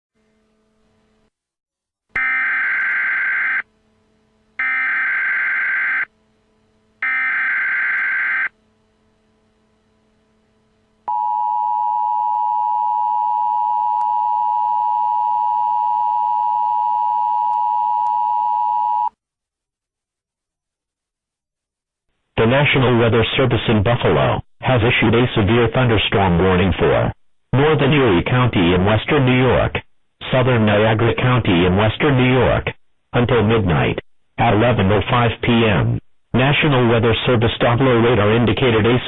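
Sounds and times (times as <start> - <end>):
two-tone alarm: 2.2 - 3.7, 4.6 - 6.1, 7.0 - 8.6, 11.1 - 19.1.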